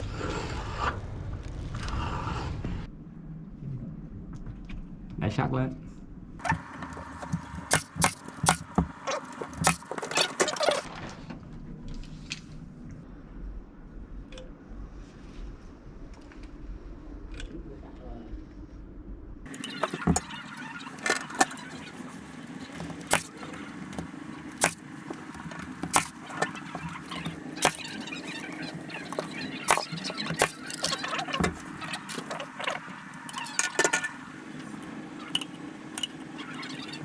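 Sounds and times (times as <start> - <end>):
sharp knocks and clicks: 6.4 - 10.9, 19.5 - 37.0.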